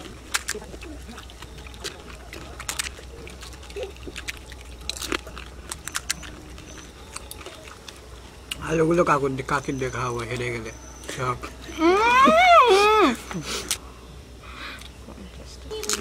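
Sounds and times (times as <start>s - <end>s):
crisp shells crunching when chewed: 0.0s - 9.1s, 15.7s - 16.0s.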